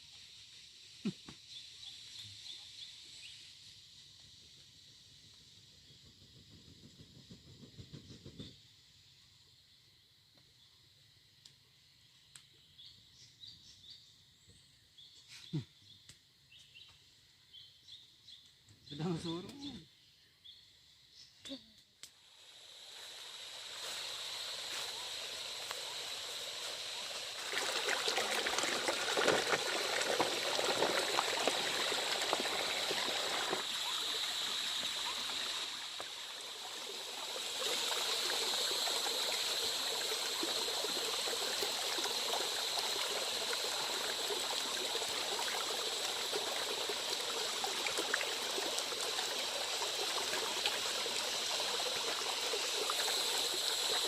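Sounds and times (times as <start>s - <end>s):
heavy rain hissing: 22.3s - 54.0s.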